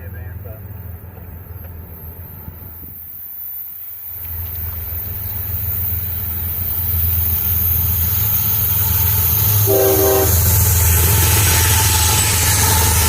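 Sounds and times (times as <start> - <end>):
locomotive engine rumble: 0.0 - 13.0
locomotive air horn blast: 9.6 - 10.6.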